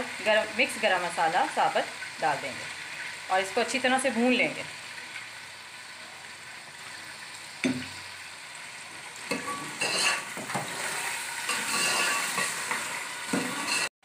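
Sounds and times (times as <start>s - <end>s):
meat sizzling in hot oil: 0.0s - 13.9s
knock on pot: 7.6s - 7.9s
spoon stirring and scraping: 9.3s - 13.9s.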